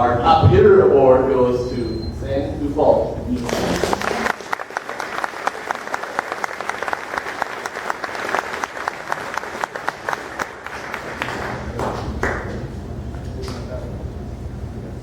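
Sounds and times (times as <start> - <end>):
audience clapping: 3.4 - 12.7.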